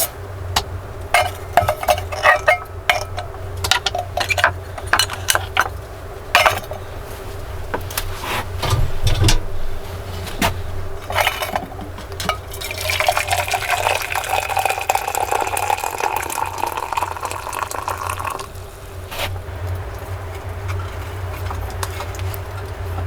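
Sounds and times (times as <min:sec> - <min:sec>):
handling knocks: 0:07.6 - 0:12.5
liquid pouring into a vessel: 0:12.4 - 0:19.1.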